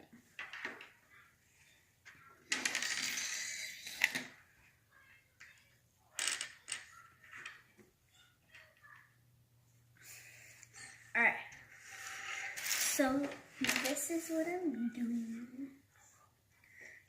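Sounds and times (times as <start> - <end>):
plastic toy bricks clattering: 2.5 - 4.4, 6.2 - 7.7, 12.1 - 14.0.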